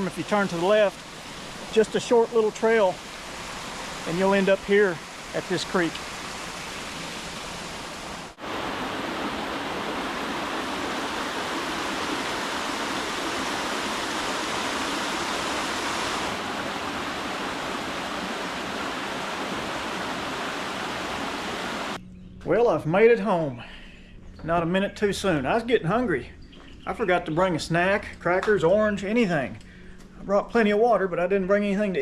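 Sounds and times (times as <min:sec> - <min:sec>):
creek water flowing over rocks: 0:00.0 - 0:22.0.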